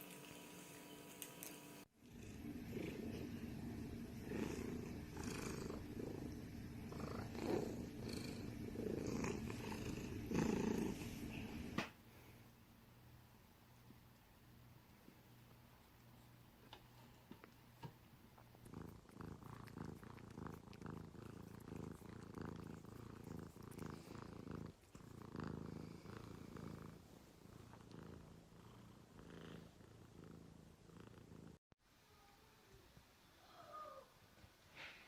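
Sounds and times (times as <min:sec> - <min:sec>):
cat purring: 0:02.0 - 0:11.8, 0:15.1 - 0:31.6.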